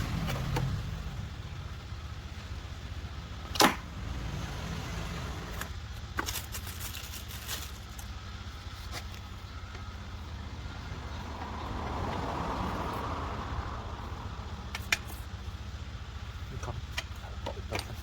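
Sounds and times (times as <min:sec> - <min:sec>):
vehicle passing: 0:00.0 - 0:05.7, 0:10.1 - 0:16.4
low vehicle rumble: 0:00.0 - 0:18.0.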